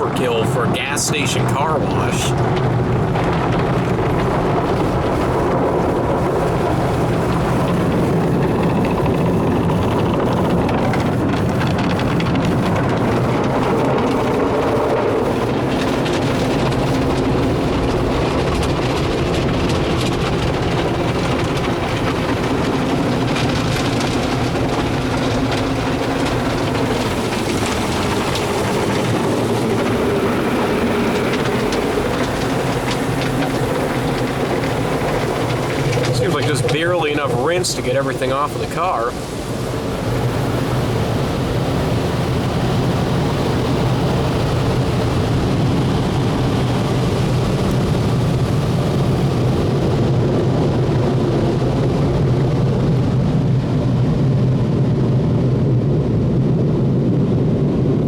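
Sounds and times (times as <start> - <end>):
car wash machinery: 0.0 - 58.0
water spraying: 12.5 - 39.9.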